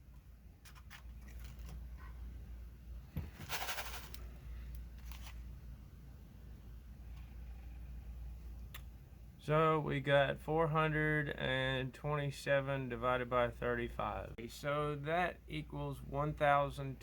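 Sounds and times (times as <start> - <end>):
rattling bbs: 3.1 - 4.4.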